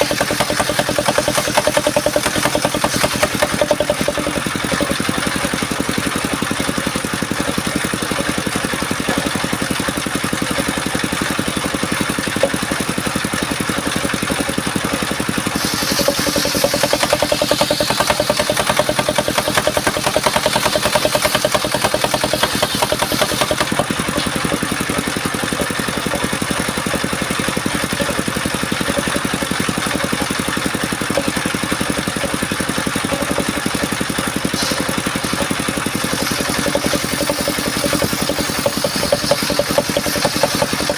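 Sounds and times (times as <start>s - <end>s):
saw blade cutting wood: 0.0s - 12.9s, 13.6s - 40.9s
sawmill engine running: 0.0s - 40.9s.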